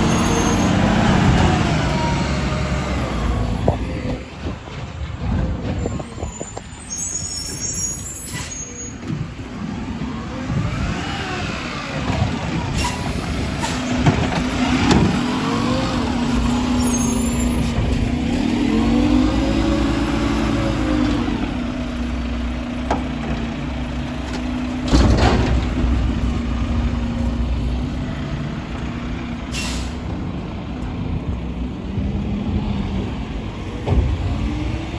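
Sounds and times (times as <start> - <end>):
truck engine revving: 0.0 - 5.4, 9.1 - 34.9
air brake hisses: 29.5 - 30.1.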